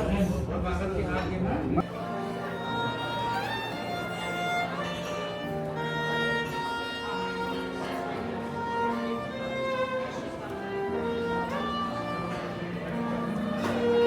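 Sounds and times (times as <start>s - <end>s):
violin melody: 1.8s - 14.0s.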